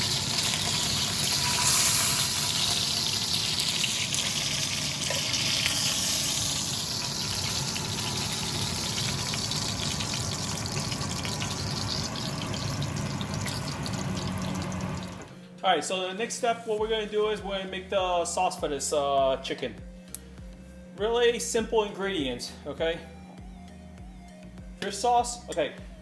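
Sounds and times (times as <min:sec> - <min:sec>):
chicken sizzling in hot oil: 0:00.0 - 0:15.3.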